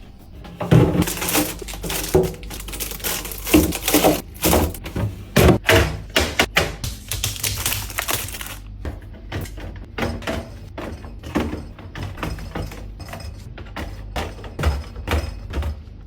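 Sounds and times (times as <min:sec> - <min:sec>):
cans and bottles clinking: 0:00.6 - 0:05.9.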